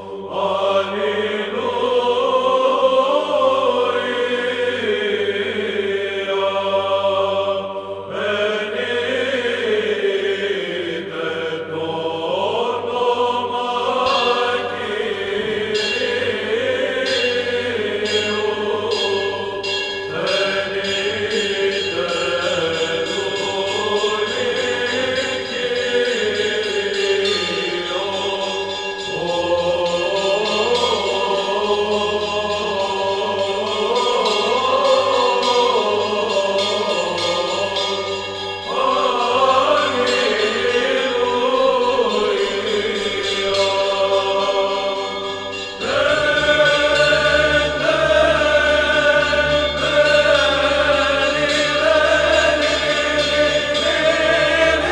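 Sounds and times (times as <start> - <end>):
choir chanting over held drone: 0.0 - 54.9.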